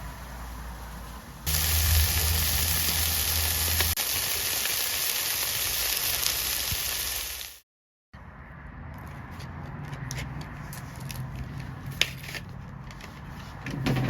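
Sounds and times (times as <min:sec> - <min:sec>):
loud steady hiss: 0:00.0 - 0:07.6.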